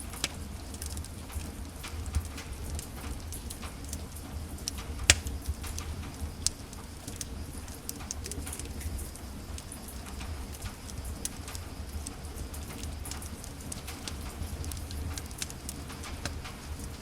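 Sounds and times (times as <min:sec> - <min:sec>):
wood fire crackling: 0:00.0 - 0:17.0
loud pop of fire: 0:05.0 - 0:05.9.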